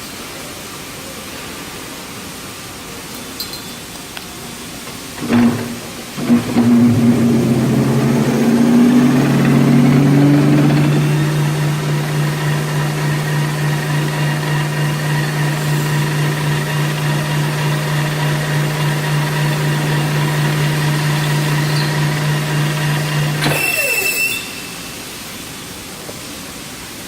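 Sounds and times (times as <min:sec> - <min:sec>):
machine electric hum: 0:05.1 - 0:24.8
whine of machine spinning down: 0:05.2 - 0:24.8
high-pitched hiss: 0:23.5 - 0:26.6.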